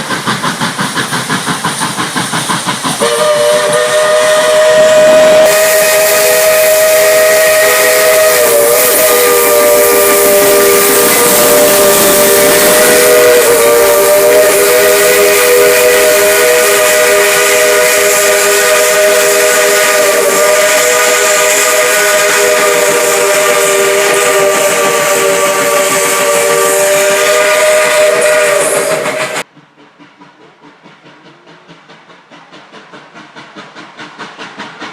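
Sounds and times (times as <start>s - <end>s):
steam hissing: 0.0s - 34.9s
steam locomotive chime whistle: 3.0s - 29.4s.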